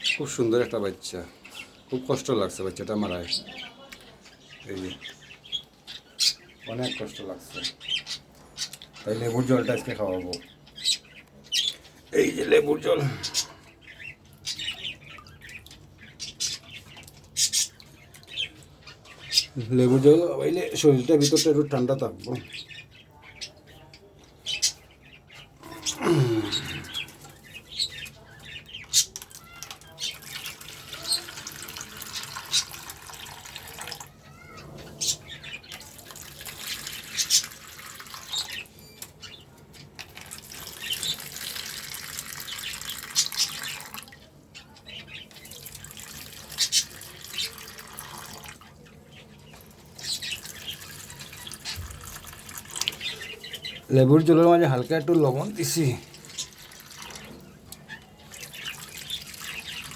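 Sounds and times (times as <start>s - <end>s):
water running and splashing: 25.6s - 34.2s, 35.0s - 38.7s, 40.0s - 44.2s, 45.1s - 59.9s.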